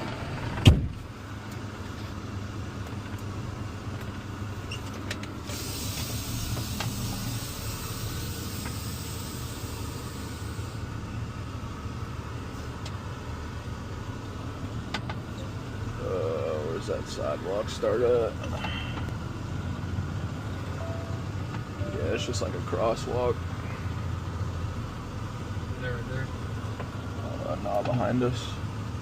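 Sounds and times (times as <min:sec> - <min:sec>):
truck engine idling: 0:00.0 - 0:29.0
loud thump: 0:00.6 - 0:01.0
high hiss: 0:05.5 - 0:10.8.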